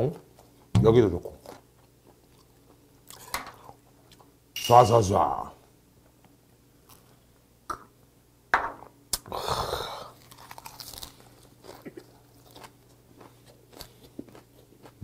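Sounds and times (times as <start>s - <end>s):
close-up chewing with crunches: 1.4s - 4.3s, 10.1s - 15.0s.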